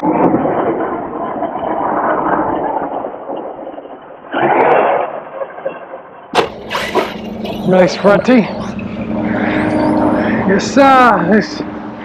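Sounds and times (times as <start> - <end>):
rc truck landing impacts: 6.4 - 7.1.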